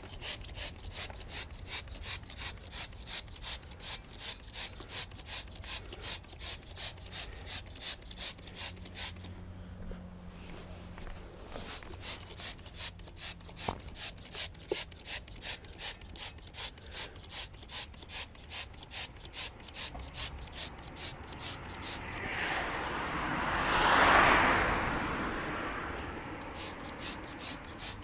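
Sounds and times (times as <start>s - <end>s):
brush scrubbing a car wheel: 0.0s - 9.3s, 11.5s - 23.1s, 25.2s - 28.0s
hissing rush: 20.0s - 28.0s.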